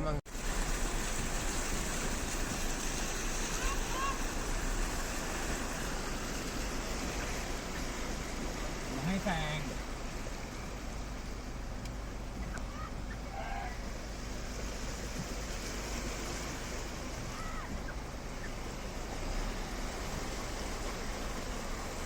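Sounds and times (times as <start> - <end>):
floodwater rushing: 0.1 - 22.0
faint calls: 6.5 - 14.2, 16.9 - 19.1.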